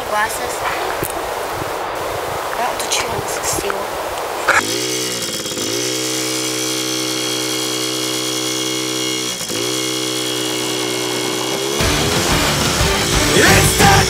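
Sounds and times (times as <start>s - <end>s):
dirt bike engine revving: 4.4s - 14.0s.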